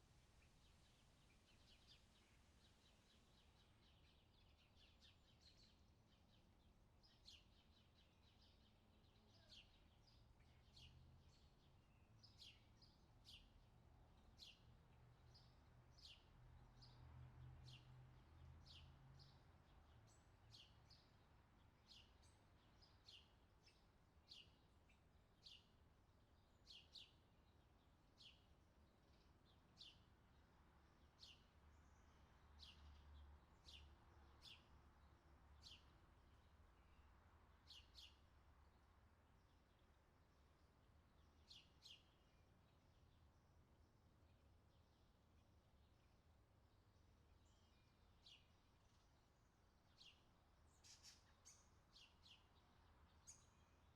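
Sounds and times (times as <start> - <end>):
faint bird chirps: 7.1 - 13.5, 47.3 - 53.9.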